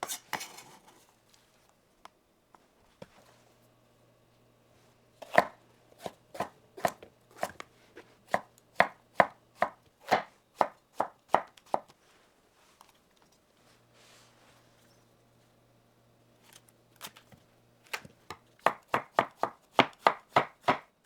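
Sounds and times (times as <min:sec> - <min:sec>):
knife chopping on cutting board: 0:05.2 - 0:07.6, 0:08.3 - 0:11.9, 0:18.6 - 0:20.9.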